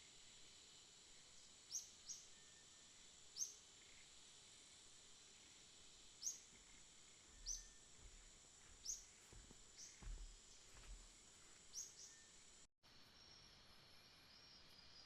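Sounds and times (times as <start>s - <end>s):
high insect drone: 0.0s - 15.0s
bird chirping: 3.4s - 4.0s, 6.2s - 11.0s, 11.7s - 12.4s.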